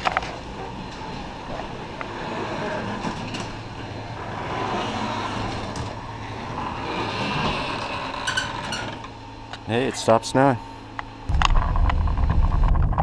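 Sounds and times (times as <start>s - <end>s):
machine running with low hum: 0.0s - 13.0s
faint clicks and creaks: 6.6s - 9.6s.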